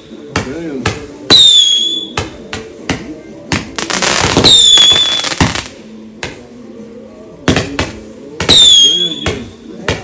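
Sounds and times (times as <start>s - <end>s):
fireworks bangs: 3.6s - 5.8s, 8.4s - 9.5s
fireworks crackling: 3.7s - 5.8s
falling firework whistle: 4.4s - 5.4s, 8.5s - 9.3s.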